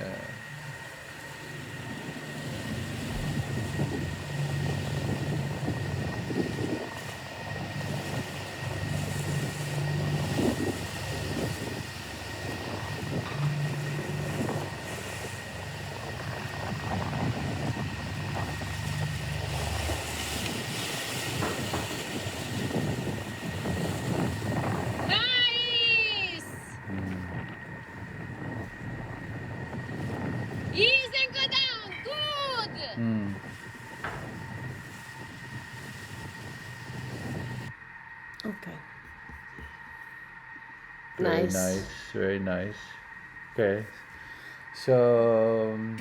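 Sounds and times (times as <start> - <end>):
rushing water: 0.0 - 25.9
rushing wind: 0.0 - 38.3
motorboat engine running: 0.0 - 46.0.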